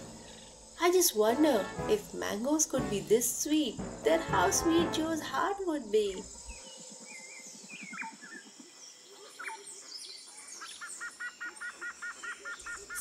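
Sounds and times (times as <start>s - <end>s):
low rapid pulsing trill: 3.0s - 5.4s.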